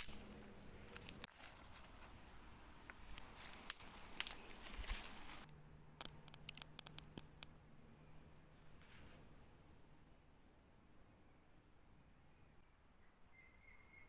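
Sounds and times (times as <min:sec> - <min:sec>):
patter and crackling clicks: 0:00.0 - 0:07.6
faint low hum: 0:00.0 - 0:14.0.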